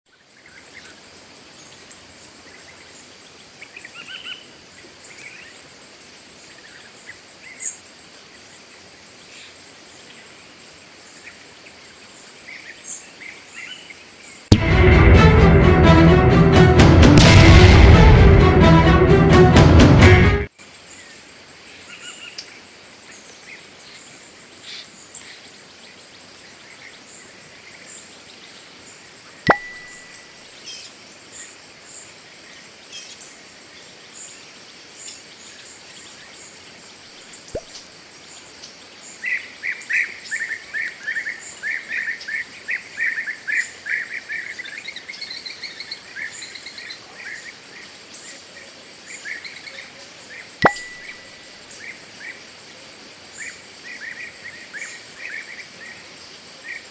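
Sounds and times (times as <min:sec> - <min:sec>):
bird rapid repeated notes: 0:29.5 - 0:30.2, 0:50.6 - 0:51.3.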